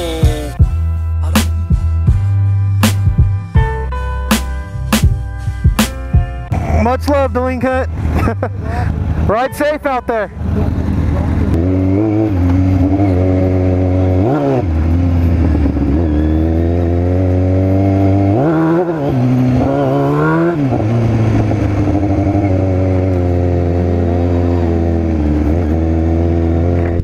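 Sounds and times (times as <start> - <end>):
motorcycle engine running: 0.0 - 0.8, 9.0 - 27.0.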